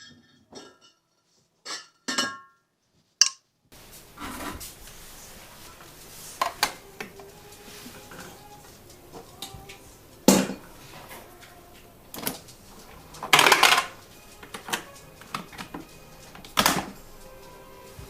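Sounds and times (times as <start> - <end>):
scrape or clatter: 4.0 - 6.8, 13.2 - 14.6.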